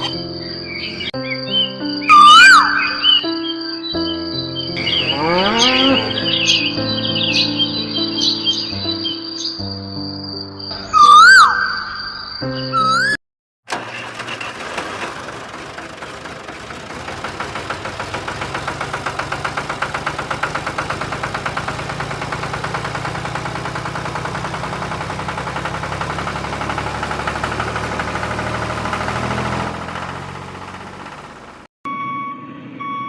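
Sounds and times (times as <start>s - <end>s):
engine running with fast knock: 13.7s - 31.7s.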